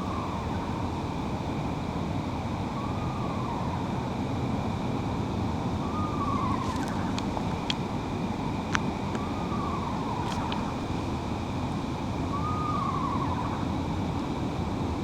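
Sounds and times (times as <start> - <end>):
owl quavering call: 5.8 - 8.0, 8.6 - 13.6.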